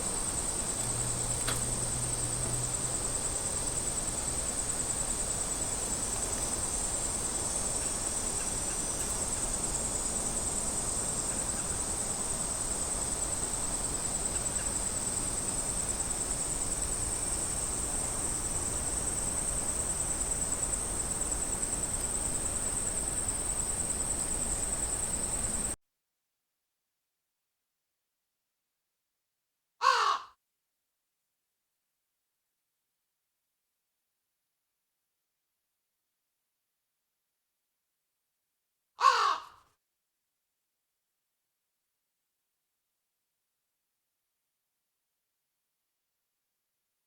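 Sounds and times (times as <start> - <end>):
cicadas buzzing: 0.0 - 25.8.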